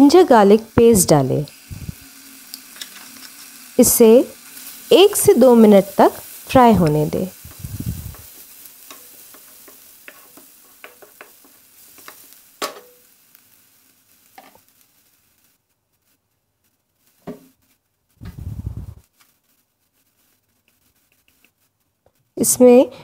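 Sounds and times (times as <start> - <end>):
food sizzling in hot oil: 0.0 - 23.0
wooden spatula scraping pan: 8.1 - 12.8
spatula knocking against pan: 10.8 - 11.4.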